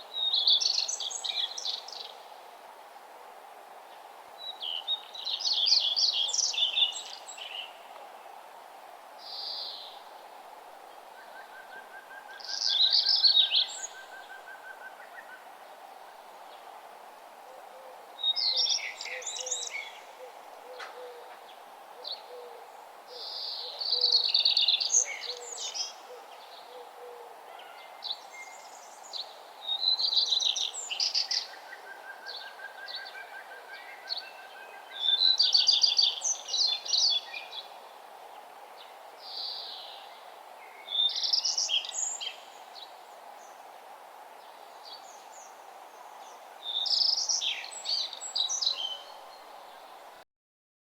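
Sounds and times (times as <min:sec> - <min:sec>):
outdoor background hiss: 0:00.0 - 0:50.2.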